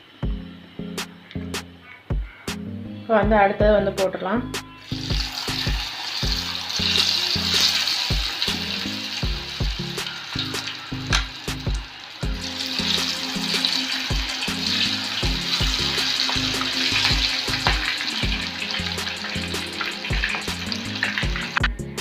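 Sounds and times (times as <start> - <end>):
background music: 0.0 - 22.0
batter deep-frying in oil: 4.8 - 21.9.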